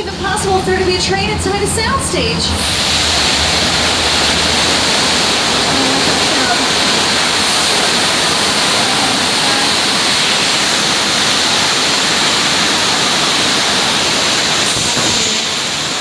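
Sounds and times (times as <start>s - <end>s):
water pouring rush: 2.5s - 16.0s.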